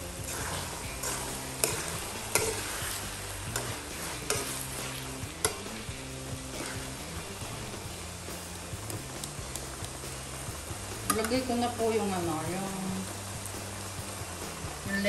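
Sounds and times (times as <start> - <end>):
filling sizzling in a wok: 0.0 - 15.0
metal spoon scraping a wok: 0.2 - 7.6
spoon clinking against a pan: 1.0 - 2.7, 3.4 - 4.6, 5.3 - 5.7.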